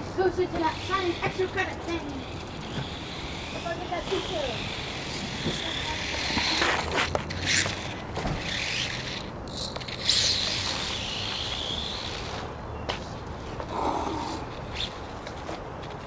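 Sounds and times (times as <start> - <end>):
tyres scraping over pavement: 0.0 - 16.0
small electric motor whining: 0.2 - 12.6.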